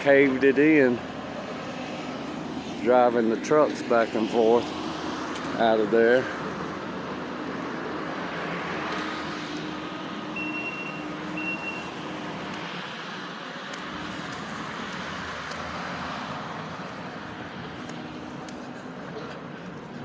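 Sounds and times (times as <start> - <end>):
road traffic passing: 0.0 - 20.0
short high beeps: 10.4 - 11.9.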